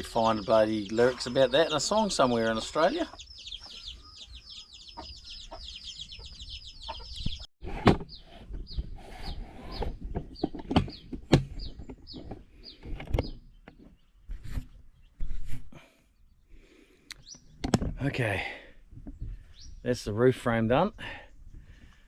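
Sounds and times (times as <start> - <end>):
chicks peeping: 0.0 - 7.5, 8.1 - 14.8.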